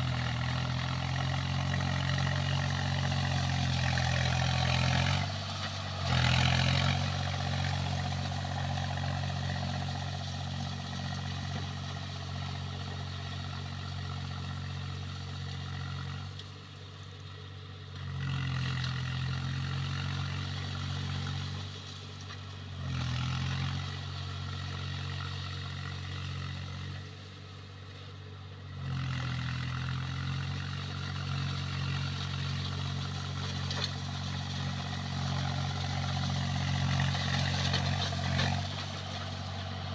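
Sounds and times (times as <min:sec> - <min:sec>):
tractor diesel engine running: 0:00.0 - 0:14.1, 0:30.2 - 0:39.9.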